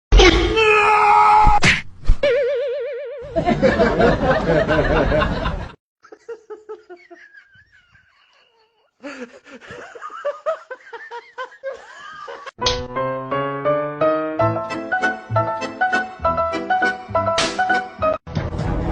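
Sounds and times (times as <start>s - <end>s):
warbling tone: 2.2s - 3.4s
laughter: 3.3s - 12.6s.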